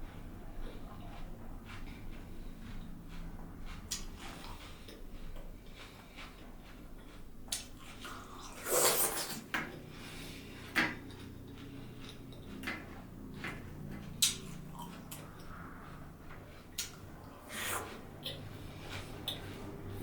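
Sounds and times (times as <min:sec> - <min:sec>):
wet mouth clicks and smacks: 0:07.0 - 0:08.2, 0:14.2 - 0:15.5, 0:16.8 - 0:17.0
juicy bite or slurp: 0:07.5 - 0:09.6.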